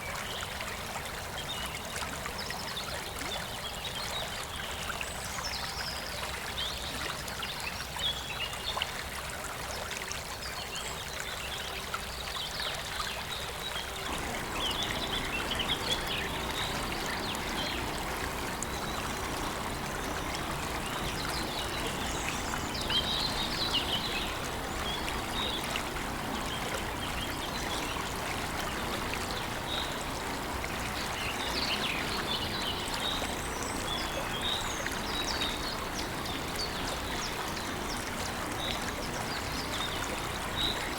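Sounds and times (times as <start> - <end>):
birds chirping: 14.0 - 27.8
waterfall rushing: 14.0 - 33.2.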